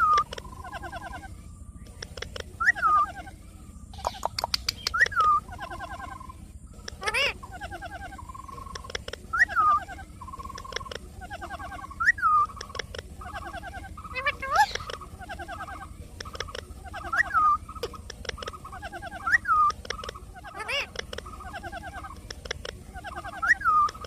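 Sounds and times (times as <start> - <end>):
sharp clicks: 0.0 - 0.5, 1.8 - 2.6, 4.0 - 5.4, 6.8 - 7.0, 8.6 - 9.4, 10.4 - 11.1, 12.5 - 13.1, 16.1 - 16.7, 17.8 - 18.6, 19.6 - 20.2, 20.9 - 22.8
parrot chirps: 0.0 - 24.0
parrot whistled call: 2.6 - 3.3, 4.0 - 6.3, 9.3 - 10.0, 11.8 - 12.5, 19.1 - 19.8, 23.0 - 24.0.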